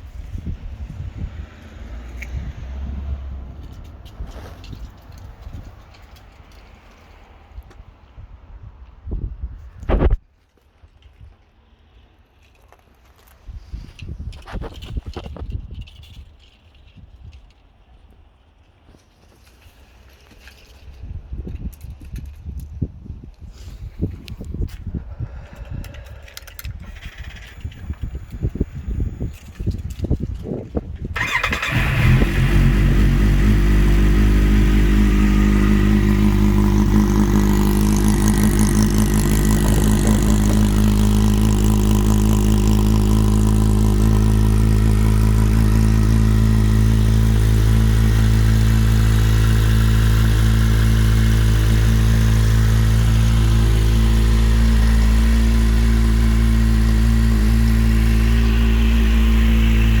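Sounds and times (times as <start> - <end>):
motorcycle engine idling: 31.2 - 60.0.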